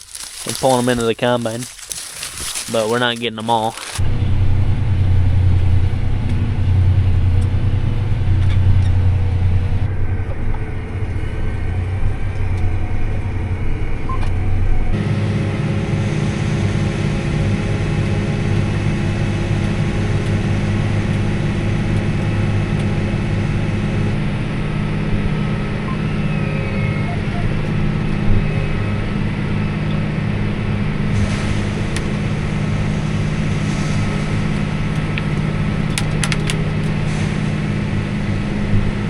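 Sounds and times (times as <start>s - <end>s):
combine harvester engine drone: 0.0s - 39.0s.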